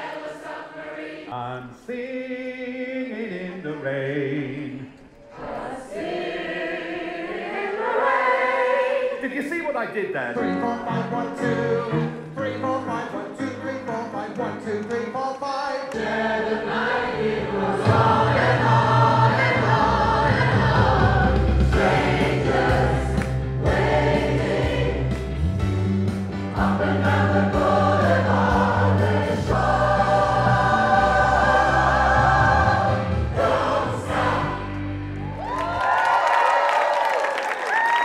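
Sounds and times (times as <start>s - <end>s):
choir singing pop song: 0.0s - 9.6s, 10.4s - 35.0s
instrumental accompaniment with bass: 16.0s - 35.9s.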